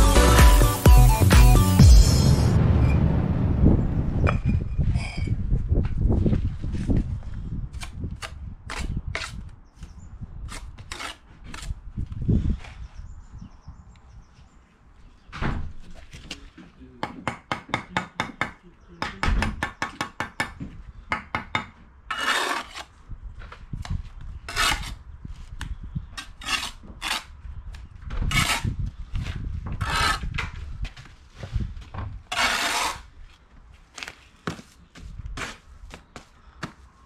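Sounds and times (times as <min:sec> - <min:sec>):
trowel scraping mortar: 0:10.5 - 0:11.8, 0:22.1 - 0:23.0, 0:24.5 - 0:25.0, 0:26.2 - 0:27.3, 0:28.3 - 0:30.4, 0:32.3 - 0:33.4.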